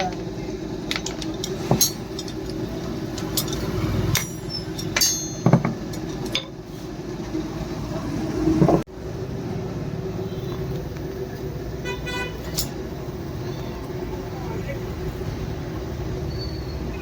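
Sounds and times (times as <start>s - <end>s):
metallic clinks and knocks: 0.9s - 6.6s.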